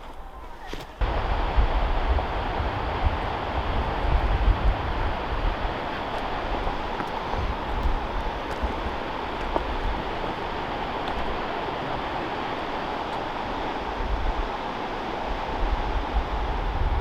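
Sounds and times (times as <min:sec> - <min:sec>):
mountain stream rushing over rocks: 0:00.0 - 0:17.0
wind buffeting microphone: 0:00.5 - 0:17.0.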